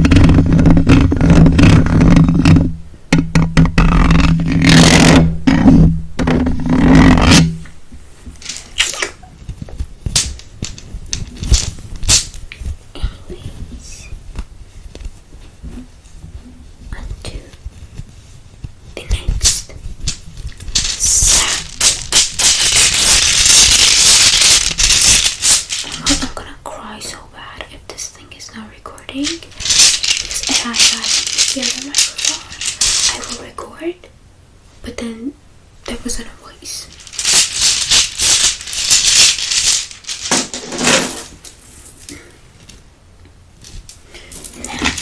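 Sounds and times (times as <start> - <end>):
scratchy rustling: 0.0 - 2.8, 3.5 - 26.6, 28.1 - 33.7, 35.8 - 42.1
small objects rattling in container: 8.4 - 9.2, 10.1 - 12.4, 19.4 - 26.4, 29.2 - 33.5, 35.8 - 41.6.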